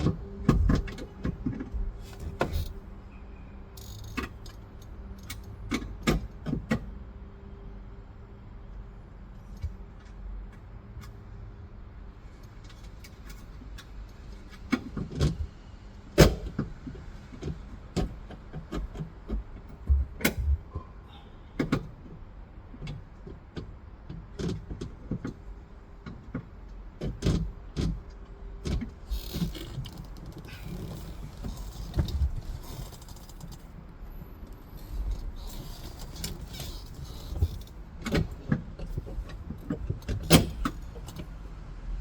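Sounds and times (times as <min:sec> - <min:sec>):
clicks and knocks on car parts: 0:00.0 - 0:02.8, 0:05.2 - 0:06.9, 0:12.6 - 0:15.5, 0:16.1 - 0:20.8, 0:21.6 - 0:33.9, 0:35.1 - 0:41.3.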